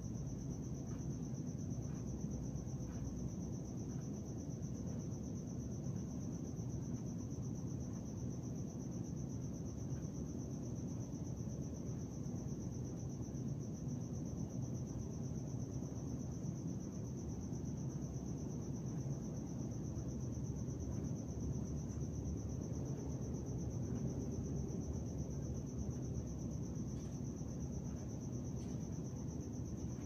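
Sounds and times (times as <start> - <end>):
faint ticks: 0.0 - 10.9
crickets trilling: 0.0 - 30.0
low rumbling background noise: 0.0 - 30.0.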